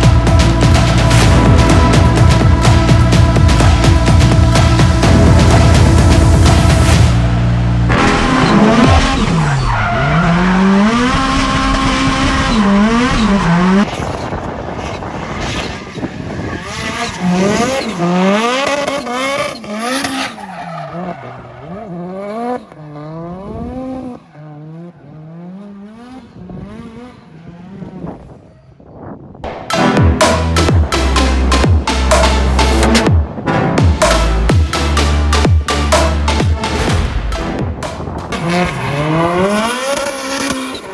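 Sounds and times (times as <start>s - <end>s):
car engine revving: 0.0s - 28.5s, 29.4s - 40.9s
tyres squealing and skidding: 6.5s - 23.2s, 38.3s - 40.9s.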